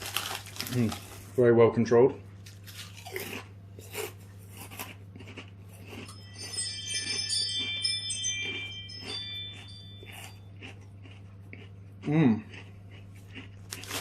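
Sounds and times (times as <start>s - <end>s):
crisps being chewed: 0.0s - 1.3s, 2.4s - 14.0s
low steady hum: 0.0s - 14.0s
tinkling chime: 6.0s - 10.6s.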